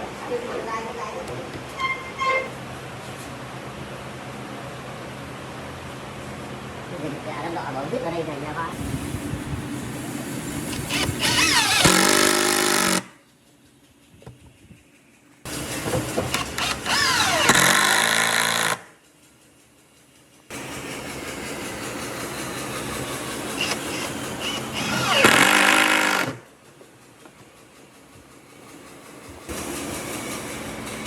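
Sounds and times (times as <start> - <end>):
power tool motor on wood: 10.7 - 13.1, 15.5 - 18.8, 23.4 - 26.4.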